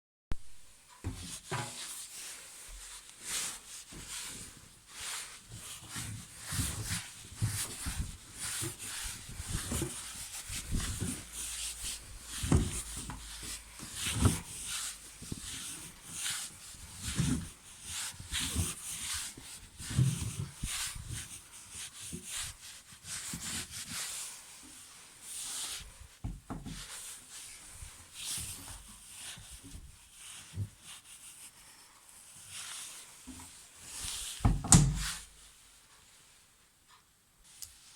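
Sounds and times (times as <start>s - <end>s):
blanket scraping in washing machine drum: 1.0s - 2.4s.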